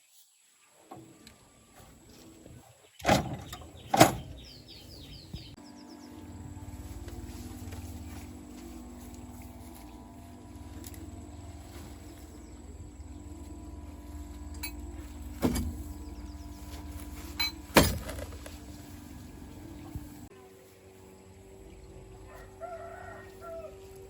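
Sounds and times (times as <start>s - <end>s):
engine running steadily: 3.1s - 24.0s
sharp metallic knocks: 17.3s - 18.4s.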